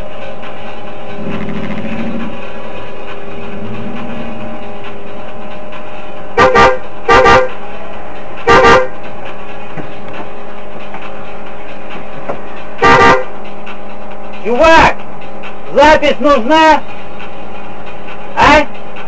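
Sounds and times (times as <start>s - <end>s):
steady hum: 0.0s - 19.0s
car horn honking: 6.4s - 7.6s, 8.5s - 8.9s, 12.8s - 13.3s.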